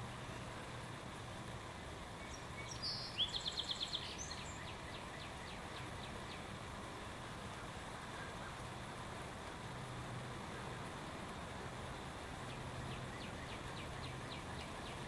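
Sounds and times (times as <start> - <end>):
steady background hiss: 0.0 - 15.0
songbird trilling: 2.2 - 6.4, 12.5 - 15.0.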